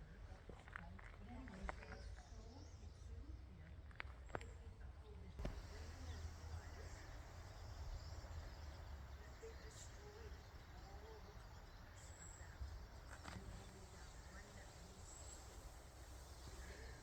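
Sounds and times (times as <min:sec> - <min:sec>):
faint bird chirps: 0:05.4 - 0:17.0.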